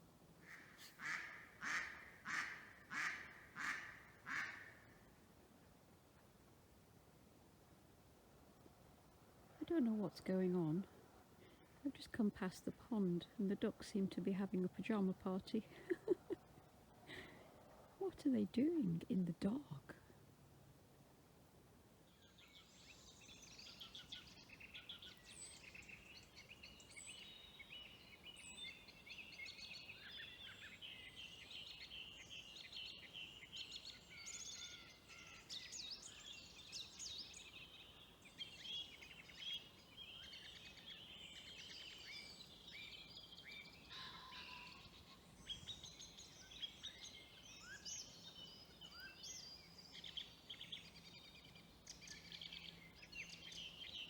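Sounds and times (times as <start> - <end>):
chirping and chattering bird calls: 0.4 - 4.8, 22.2 - 54.0.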